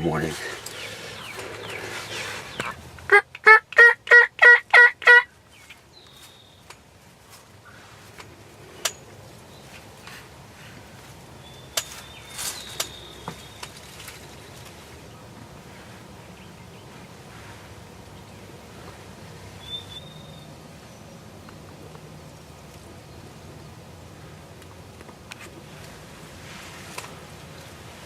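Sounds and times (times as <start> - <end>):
turkey yelping: 3.1 - 5.3.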